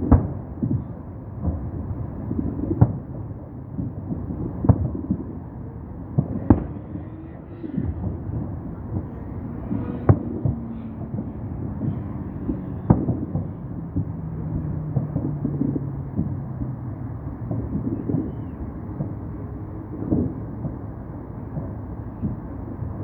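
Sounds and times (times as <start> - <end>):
distant fireworks bangs: 0.0 - 23.0
low rumble: 7.8 - 23.0.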